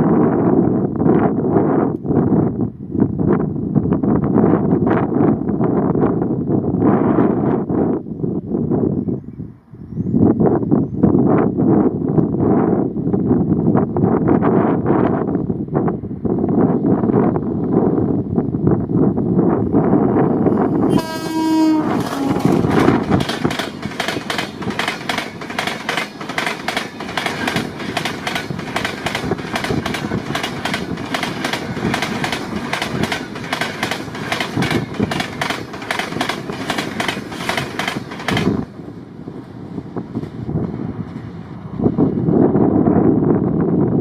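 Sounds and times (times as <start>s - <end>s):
train horn blast: 20.8s - 23.0s
train wheels clattering over rails: 21.7s - 38.9s.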